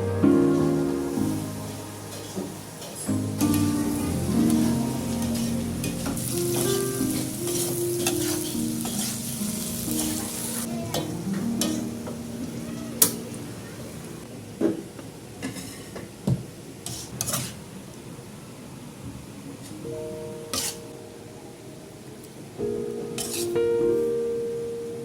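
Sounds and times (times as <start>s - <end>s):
soft background music: 0.0s - 13.1s
batter sizzling in hot oil: 0.6s - 10.7s.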